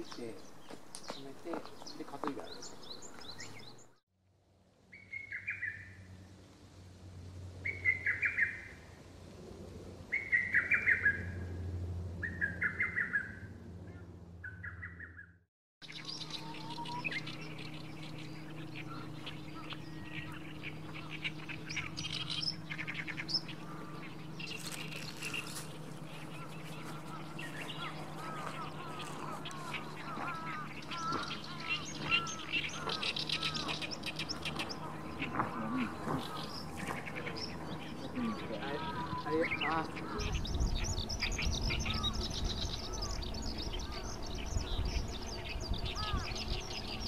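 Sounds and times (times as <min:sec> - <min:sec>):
high twittering birdsong: 0:00.0 - 0:04.0, 0:04.8 - 0:06.3, 0:07.6 - 0:08.9, 0:10.1 - 0:47.0
low steady hum: 0:15.8 - 0:47.0.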